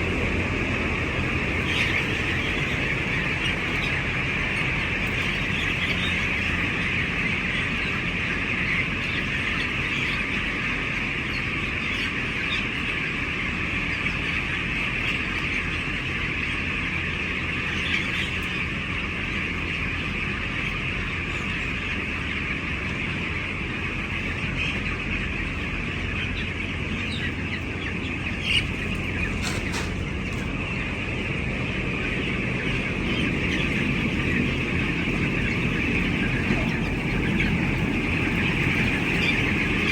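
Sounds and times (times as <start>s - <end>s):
chickens cheeping: 0.0s - 39.9s
low steady hum: 0.0s - 39.9s.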